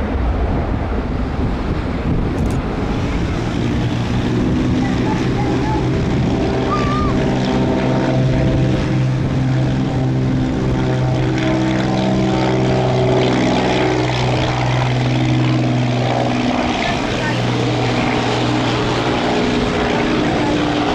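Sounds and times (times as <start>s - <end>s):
propeller plane engines droning: 0.0s - 20.9s.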